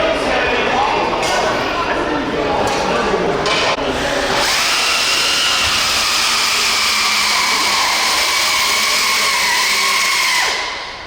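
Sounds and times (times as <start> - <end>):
electric motor and gears whining: 3.9 - 10.6.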